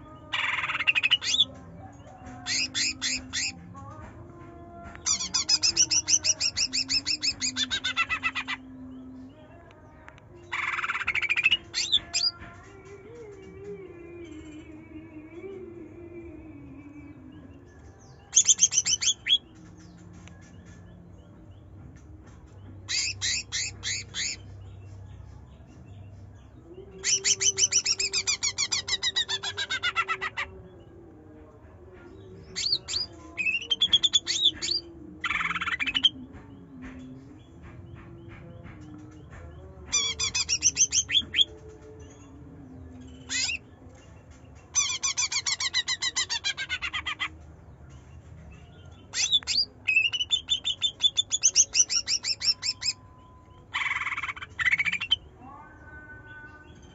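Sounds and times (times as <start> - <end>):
bird singing rapid notes: 0.0 - 1.5, 2.4 - 3.6, 4.9 - 8.8, 17.6 - 21.6, 22.8 - 26.1, 27.0 - 30.5, 32.4 - 36.6, 37.4 - 42.3, 48.5 - 56.9.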